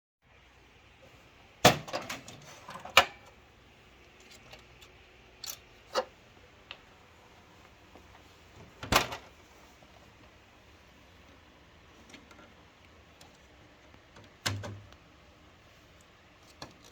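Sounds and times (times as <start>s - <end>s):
plastic panels clicking and knocking: 14.1s - 15.0s.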